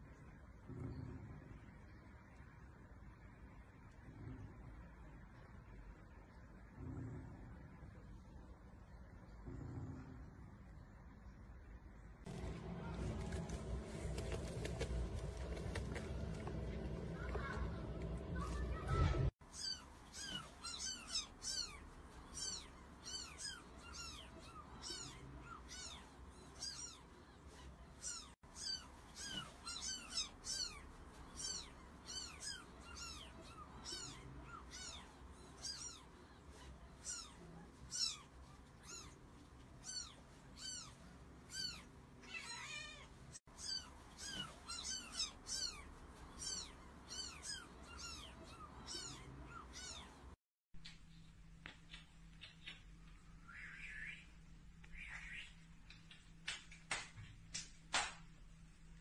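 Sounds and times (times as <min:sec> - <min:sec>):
kittens mewing: 0:13.9 - 0:50.4.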